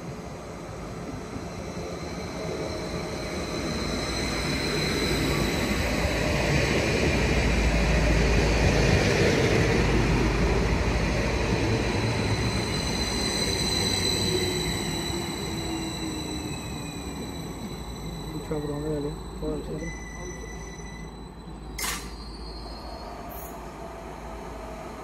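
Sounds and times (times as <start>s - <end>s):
train passing at speed: 0.0s - 25.0s.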